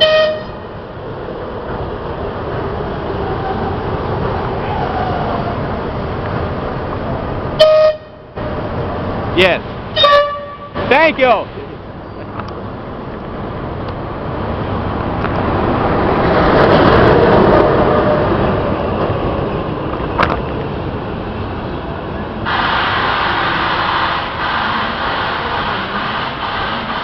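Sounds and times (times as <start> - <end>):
train rumbling past: 0.0 - 27.0
hiss: 22.5 - 27.0.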